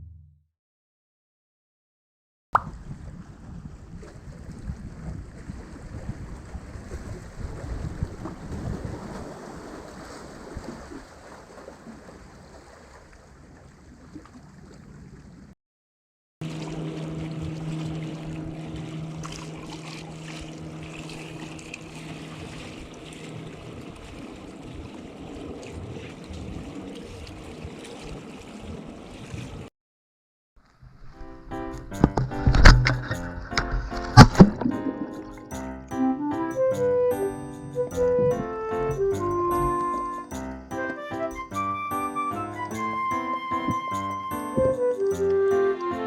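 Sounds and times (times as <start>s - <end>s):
muffled underwater water rush: 2.6s - 15.5s, 16.4s - 29.7s, 30.6s - 35.4s
steady low hum: 16.4s - 22.3s.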